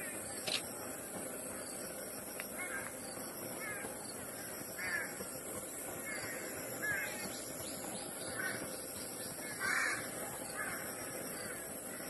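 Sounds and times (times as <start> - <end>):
steady background hiss: 0.0 - 12.0
harsh cawing bird calls: 2.5 - 12.0.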